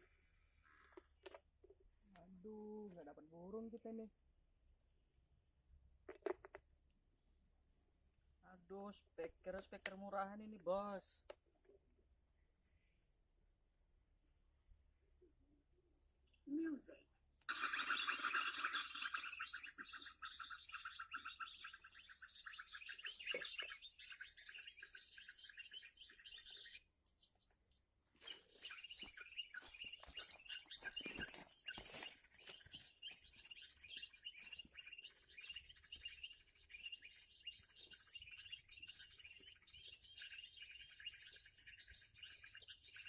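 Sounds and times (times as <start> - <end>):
bird call through tinny speaker: 28.5 - 34.8.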